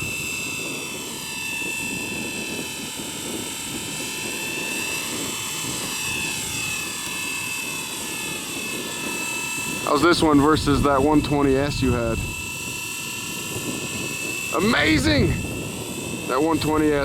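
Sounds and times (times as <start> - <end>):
rc helicopter motor whine: 0.0 - 17.0
rotor blades whirring: 0.0 - 17.0.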